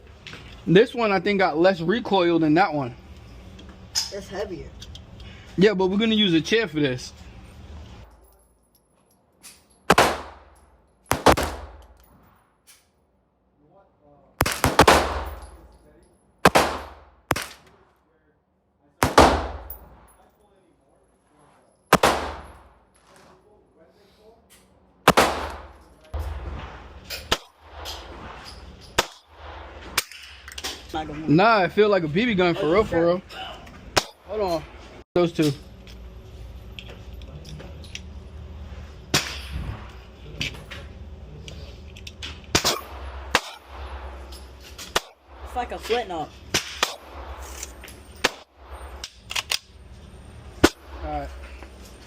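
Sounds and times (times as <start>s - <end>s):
gunshots with ringing tail: 9.9s - 12.0s, 14.4s - 15.7s, 16.4s - 17.7s, 19.0s - 20.1s, 21.9s - 22.8s, 25.1s - 28.4s.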